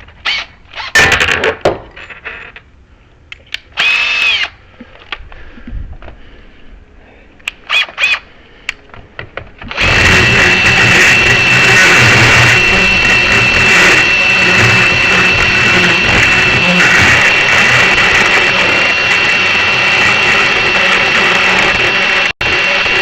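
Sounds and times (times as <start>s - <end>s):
power drill whirring: 0.2s - 0.9s, 3.8s - 4.6s, 7.6s - 8.2s, 9.7s - 23.0s.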